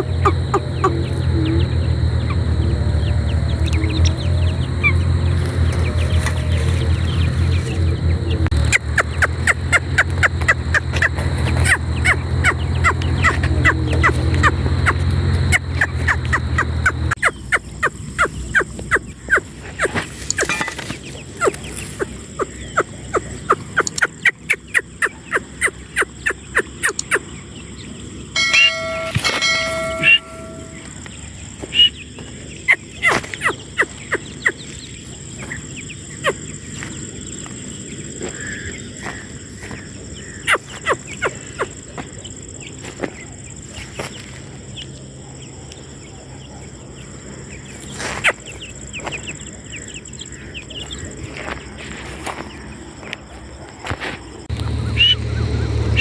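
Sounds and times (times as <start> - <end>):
francolin sharp call notes: 28.4 - 31.0
steady pitched tone: 28.4 - 31.1.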